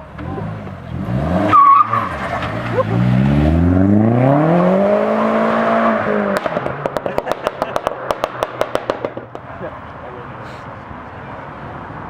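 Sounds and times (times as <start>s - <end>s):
car engine revving: 0.0s - 9.6s
exhaust pops and crackles: 6.2s - 9.8s.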